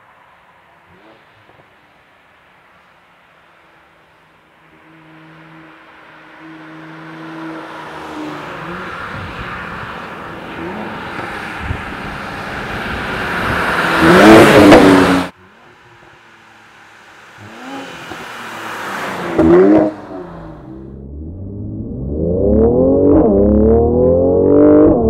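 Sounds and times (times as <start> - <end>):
car engine accelerating hard: 10.5 - 16.1, 17.3 - 25.0.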